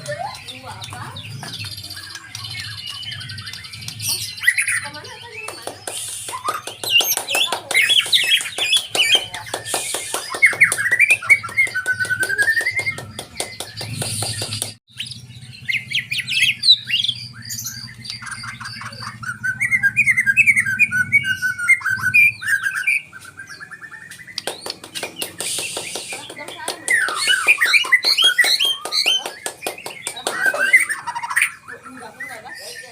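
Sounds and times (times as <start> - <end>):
bird singing whistled phrases: 1.6 - 4.9, 5.9 - 24.4, 25.4 - 29.2.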